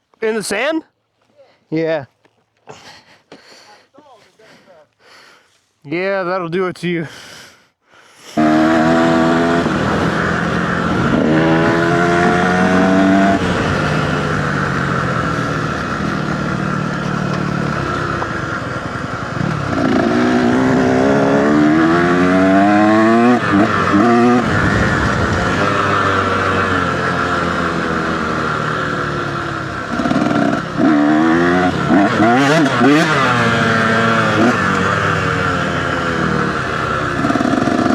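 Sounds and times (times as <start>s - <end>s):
dirt bike engine accelerating: 8.4s - 37.9s.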